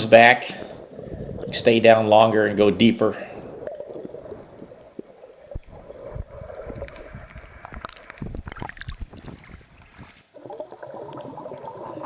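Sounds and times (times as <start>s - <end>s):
water sloshing and bubbling: 0.0s - 12.0s
scattered clicks and pops: 3.4s - 9.6s.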